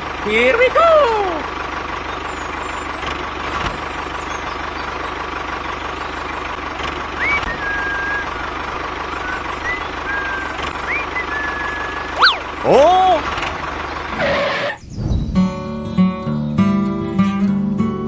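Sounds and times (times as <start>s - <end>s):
engine chugging: 0.0s - 14.8s
rising whistle-like tone: 7.2s - 8.5s, 9.1s - 12.5s.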